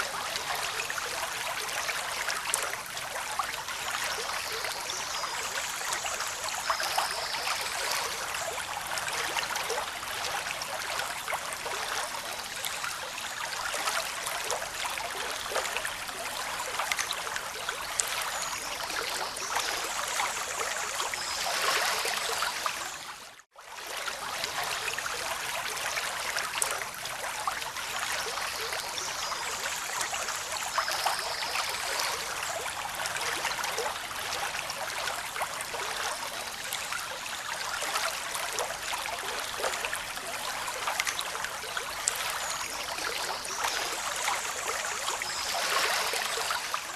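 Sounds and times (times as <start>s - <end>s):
water rushing and trickling: 0.0s - 46.9s.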